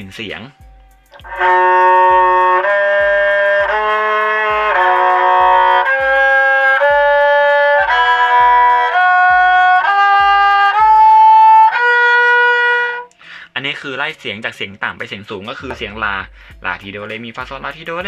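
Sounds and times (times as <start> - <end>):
bowed fiddle playing a scale: 0.4 - 13.2.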